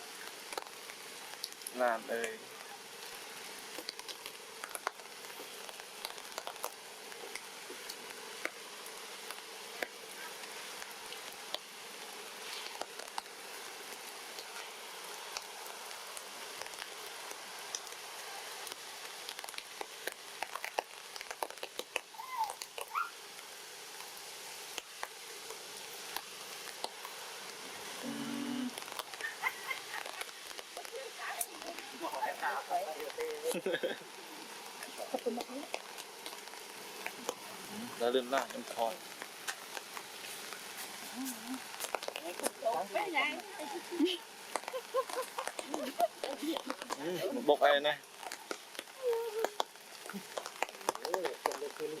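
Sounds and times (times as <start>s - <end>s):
rain pattering: 0.0s - 52.0s.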